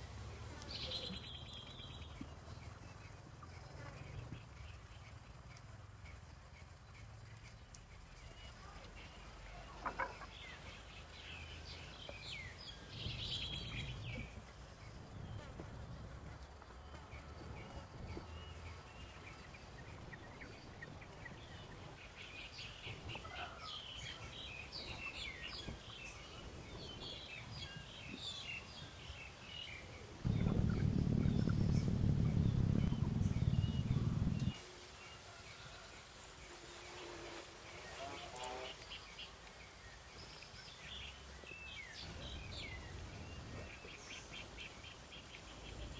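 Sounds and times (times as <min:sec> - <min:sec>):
small birds chirping: 0:00.3 - 0:35.3, 0:37.7 - 0:45.9
low background rumble: 0:30.2 - 0:34.6
loud low rumble: 0:30.3 - 0:34.5.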